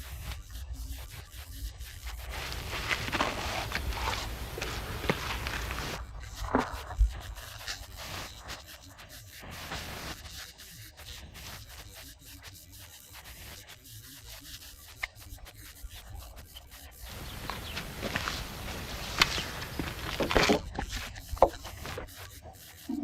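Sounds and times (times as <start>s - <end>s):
plaster scraped on wall: 1.8s - 10.3s, 17.1s - 23.0s.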